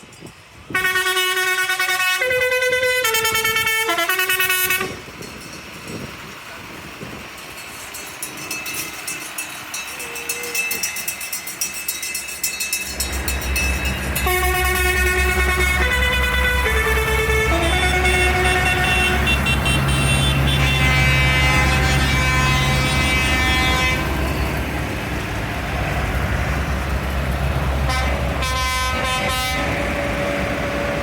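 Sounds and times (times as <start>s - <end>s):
tractor engine running: 0.2s - 31.0s
musical horn playing tune: 0.7s - 5.0s, 14.0s - 24.3s, 27.8s - 30.6s
deep pulsing engine rumble: 2.6s - 31.0s.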